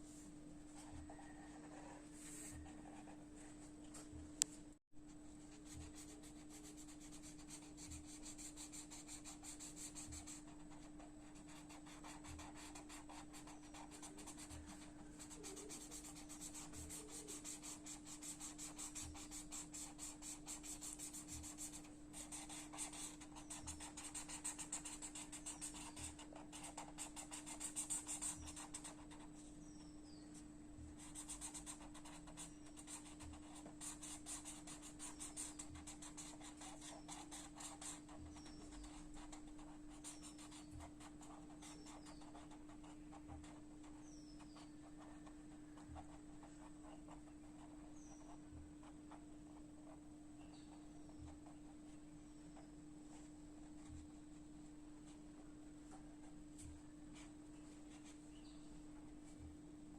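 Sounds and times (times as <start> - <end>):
colouring tool scratching on paper: 5.5 - 29.3, 31.0 - 49.2.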